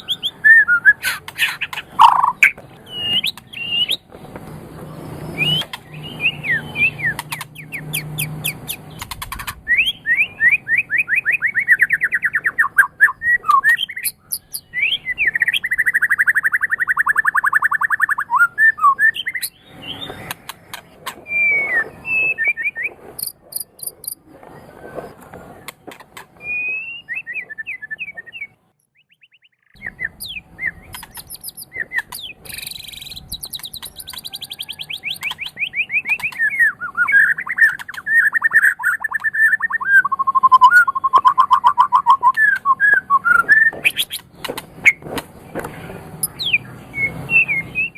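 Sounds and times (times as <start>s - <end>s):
songbird singing: 0.0s - 47.9s.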